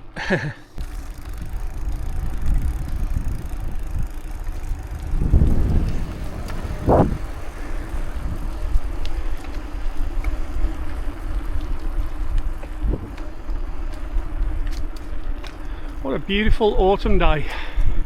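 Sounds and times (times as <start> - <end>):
steady low hum: 0.0 - 16.8
rolling tyre and road noise: 0.0 - 18.0
wind rushing over microphone: 0.8 - 14.4.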